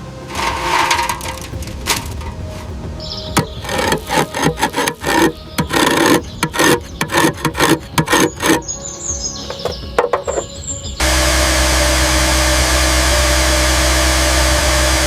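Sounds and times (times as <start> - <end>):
hand scraping: 0.2 - 8.8.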